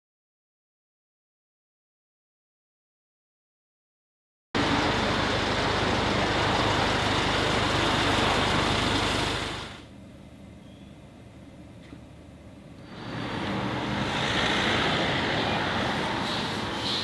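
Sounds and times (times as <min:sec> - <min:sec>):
broad rushing noise: 0:04.6 - 0:09.9
car engine hum: 0:04.6 - 0:09.9.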